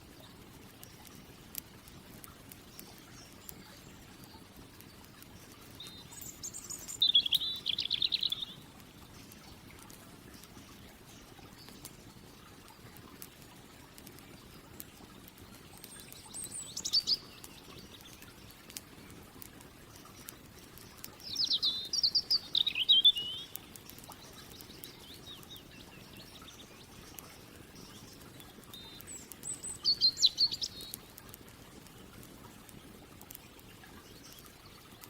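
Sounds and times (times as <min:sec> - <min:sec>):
campfire crackling: 0:00.0 - 0:35.0
songbird chirping: 0:02.6 - 0:12.0, 0:15.4 - 0:19.2, 0:19.9 - 0:31.2.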